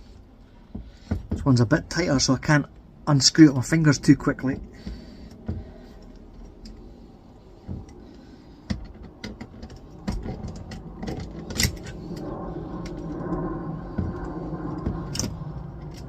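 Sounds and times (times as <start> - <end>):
low hum: 0.0 - 16.0
metallic clicks and scrapes: 4.8 - 16.0.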